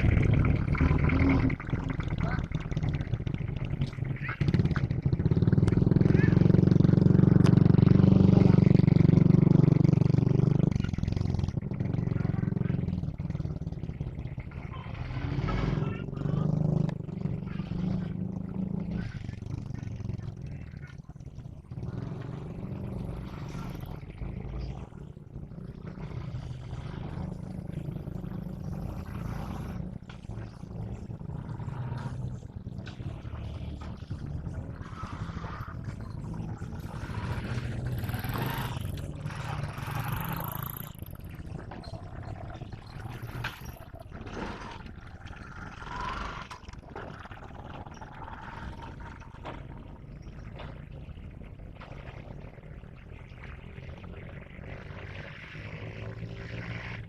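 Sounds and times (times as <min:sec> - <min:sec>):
locomotive engine rumbling: 0:00.0 - 0:54.6.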